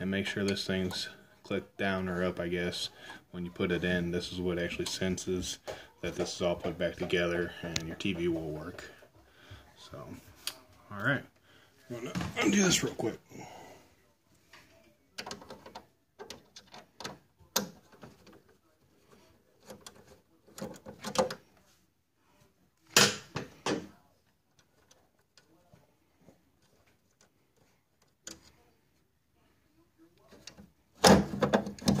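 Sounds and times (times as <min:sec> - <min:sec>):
plastic clicks and knocks: 0:30.3 - 0:32.0.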